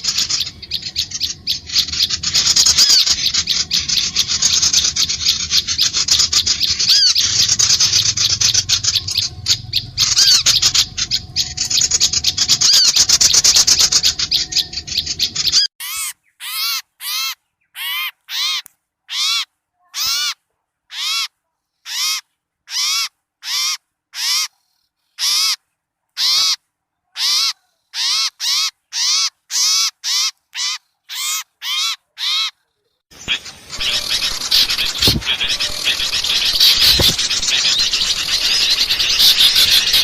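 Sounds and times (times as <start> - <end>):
small birds chattering: 0.0 - 20.4, 33.1 - 40.0
short harsh bird calls: 0.0 - 25.6, 27.2 - 40.0.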